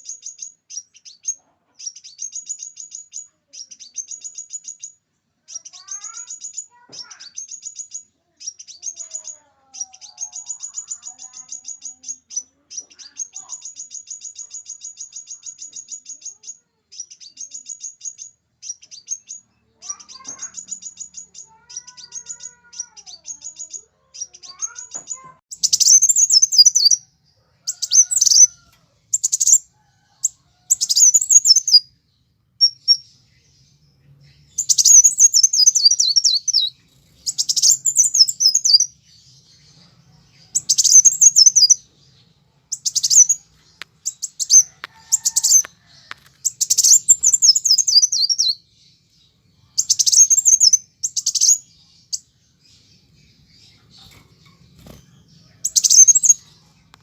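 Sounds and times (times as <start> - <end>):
high-pitched ticking bird trills: 0.0 - 27.0, 27.6 - 31.9, 32.6 - 33.2, 34.5 - 39.6, 40.5 - 41.8, 42.7 - 48.6, 49.8 - 52.2, 55.6 - 57.0
sharp bird chittering: 0.0 - 31.9, 32.6 - 48.7, 49.6 - 56.5.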